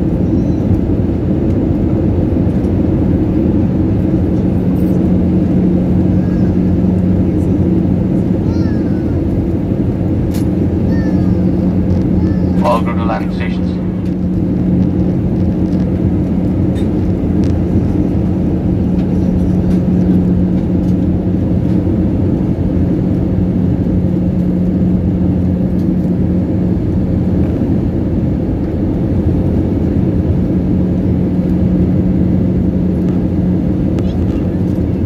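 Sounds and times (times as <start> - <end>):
airliner cabin drone: 0.0 - 35.0.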